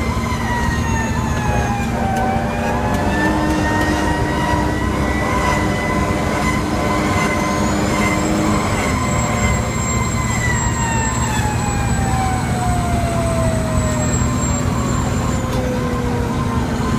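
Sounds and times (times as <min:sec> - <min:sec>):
fire engine siren winding down: 0:00.0 - 0:16.9.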